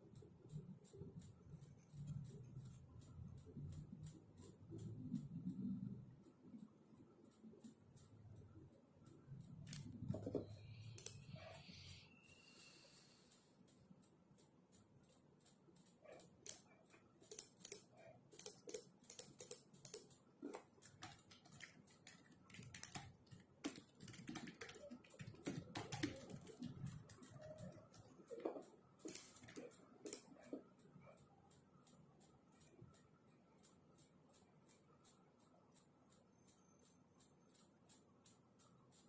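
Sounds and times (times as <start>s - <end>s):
typing on computer keyboard: 0.0s - 39.0s.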